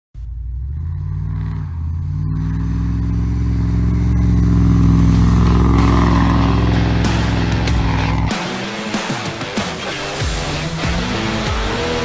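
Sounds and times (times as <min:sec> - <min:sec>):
diesel engine exhaust rumble: 0:00.2 - 0:08.6.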